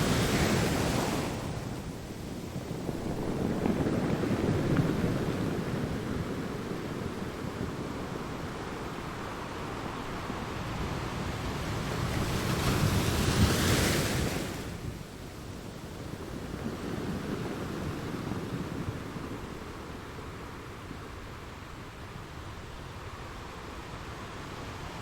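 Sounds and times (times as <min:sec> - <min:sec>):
wave crashing: 0:00.0 - 0:07.0
ocean waves washing in: 0:00.0 - 0:25.0.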